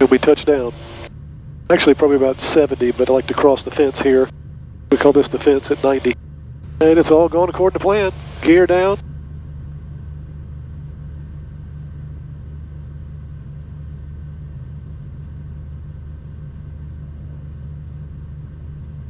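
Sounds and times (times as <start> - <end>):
aircraft engines droning: 0.0 - 1.1, 1.7 - 4.3, 4.9 - 9.0.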